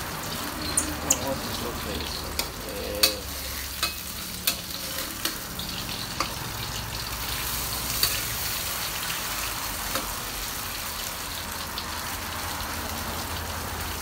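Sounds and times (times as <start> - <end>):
mushrooms sizzling in hot oil: 0.0 - 14.0
metal spatula scraping wok: 0.6 - 10.6.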